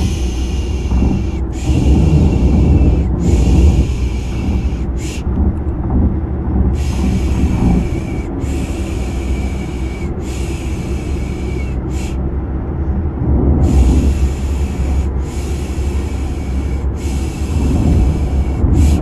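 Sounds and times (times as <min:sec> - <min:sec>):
rhythmic shushing: 0:00.0 - 0:12.3
low car rumble: 0:00.0 - 0:19.0.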